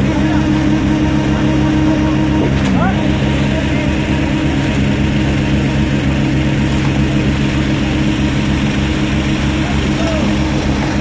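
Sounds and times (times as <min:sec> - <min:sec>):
concrete mixer engine humming: 0:00.0 - 0:11.0.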